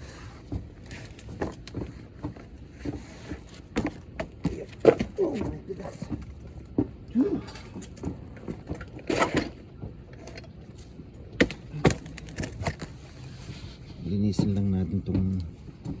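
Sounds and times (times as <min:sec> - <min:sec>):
clicks and knocks of tools: 0:07.6 - 0:13.0.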